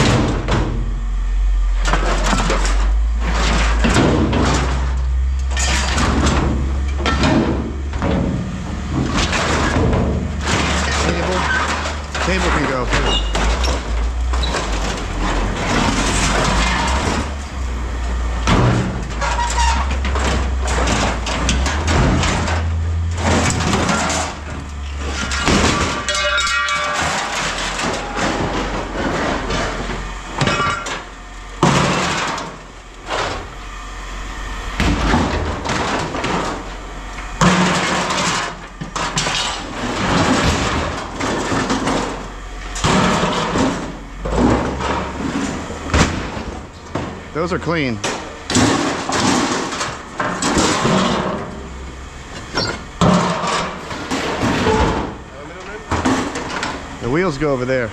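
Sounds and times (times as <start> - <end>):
low hum: 0.0 - 57.9
scrap metal clanking: 1.8 - 33.6, 34.8 - 57.8
metal ringing: 18.8 - 29.0.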